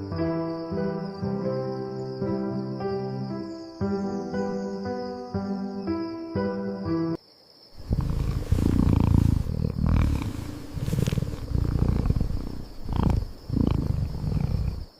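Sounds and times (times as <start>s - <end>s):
cat purring: 7.8s - 14.9s.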